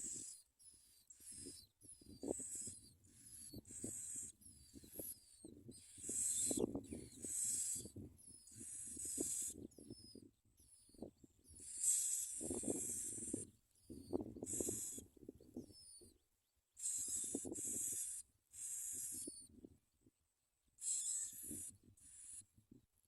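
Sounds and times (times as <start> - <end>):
nestlings begging with hissing bursts: 0.0 - 0.4, 1.1 - 9.7, 11.6 - 15.1, 16.8 - 19.4, 20.8 - 22.4.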